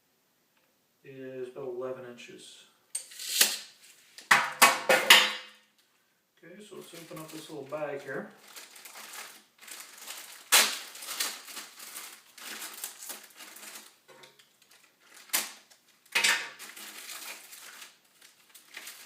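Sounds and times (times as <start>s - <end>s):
plastic bag crinkling: 6.7s - 19.0s.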